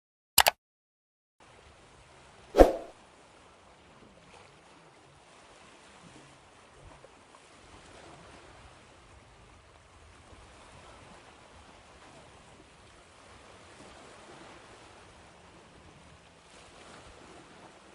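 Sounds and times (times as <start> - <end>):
ocean waves washing in: 2.6 - 2.9.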